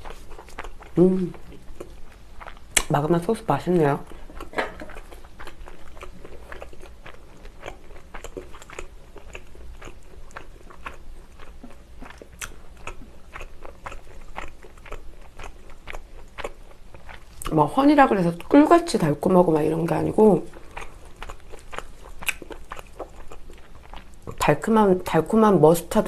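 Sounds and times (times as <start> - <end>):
person chewing chicken: 0.0 - 2.9, 4.0 - 17.5, 20.5 - 24.4.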